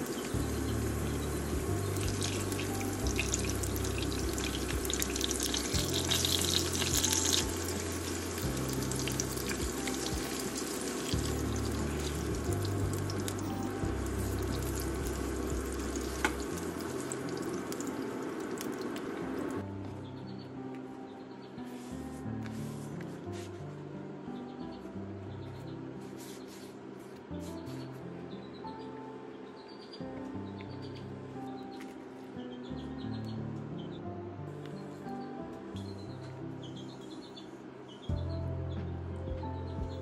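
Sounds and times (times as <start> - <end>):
background music with bass: 0.0 - 18.0, 38.1 - 40.0
meat sizzling in oil: 0.0 - 19.1.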